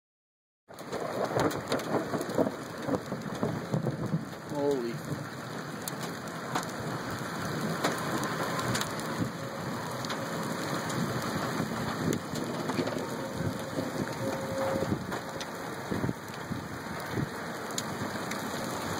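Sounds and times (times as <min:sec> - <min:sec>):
raindrop hits: 0:00.7 - 0:18.9
steady rain: 0:00.7 - 0:18.9.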